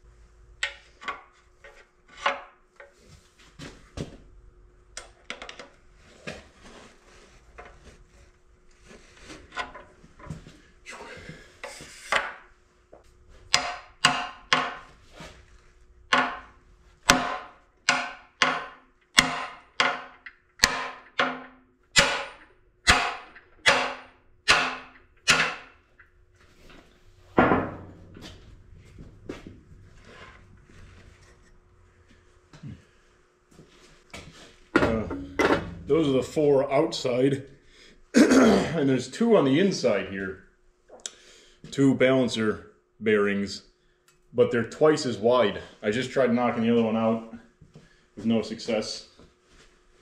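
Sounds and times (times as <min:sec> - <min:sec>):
hammer striking metal: 0:17.1 - 0:25.8.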